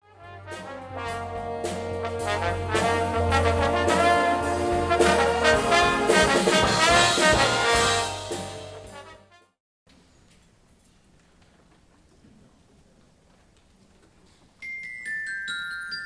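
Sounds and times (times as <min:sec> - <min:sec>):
brass instruments: 0:00.0 - 0:09.6
concert band playing: 0:00.1 - 0:09.4.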